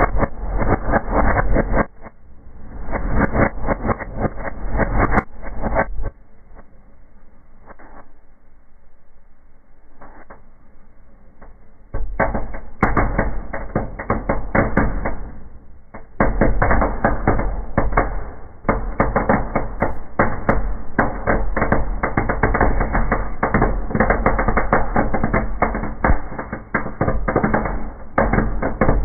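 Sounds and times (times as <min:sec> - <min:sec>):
fire crackling and popping: 0:00.0 - 0:06.7, 0:11.4 - 0:29.0.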